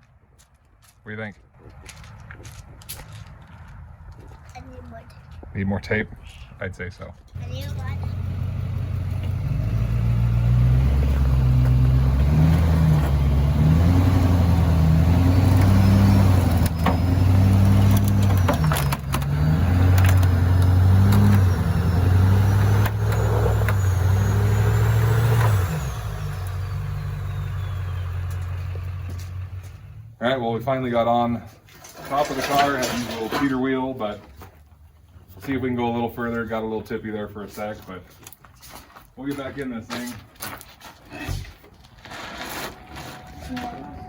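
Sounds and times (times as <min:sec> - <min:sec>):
diesel truck engine revving: 0:07.4 - 0:30.2.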